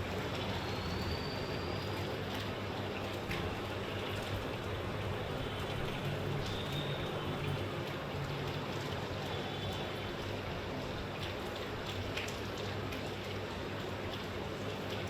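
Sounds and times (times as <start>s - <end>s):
steady rain falling: 0.0s - 15.0s
faint high whistle: 0.6s - 2.1s
raindrop ticks: 5.5s - 15.0s.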